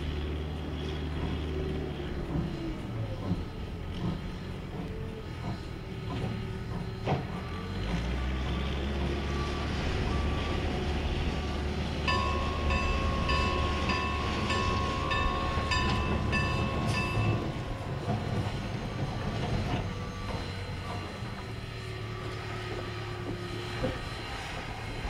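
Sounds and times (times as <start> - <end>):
train rumbling past: 0.0 - 25.0
bell ringing: 12.0 - 21.0.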